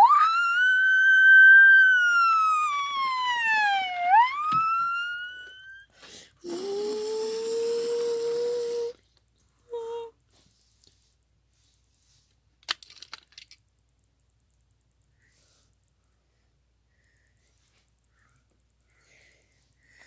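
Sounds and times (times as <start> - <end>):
siren wail: 0.0 - 5.9.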